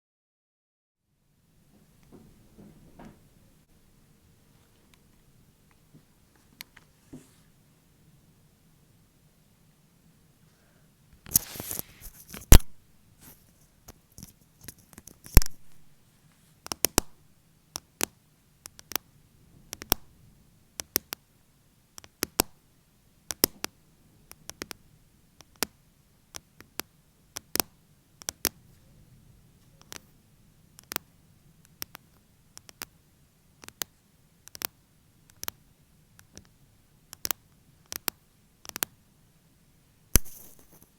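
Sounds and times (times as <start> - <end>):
nails scratching: 11.2 - 15.8, 40.2 - 40.9
fake nails tapping: 16.7 - 17.2, 17.8 - 19.0, 19.7 - 20.1, 20.8 - 21.2, 22.0 - 22.6, 23.3 - 24.8, 25.4 - 28.6, 33.6 - 35.6, 36.2 - 38.9.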